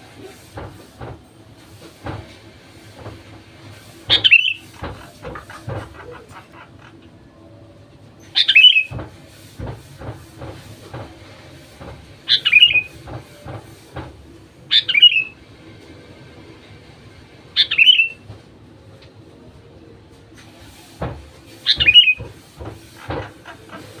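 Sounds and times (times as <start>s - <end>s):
bird calling: 4.1s - 7.4s, 8.3s - 8.9s, 12.3s - 12.9s, 14.7s - 15.3s, 17.6s - 18.2s, 21.6s - 22.3s.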